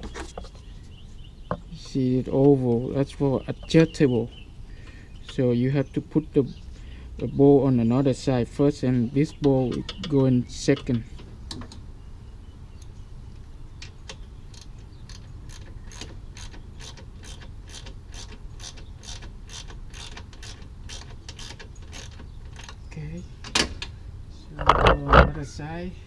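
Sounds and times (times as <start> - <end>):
ratchet wrench clicking: 14.6 - 22.7.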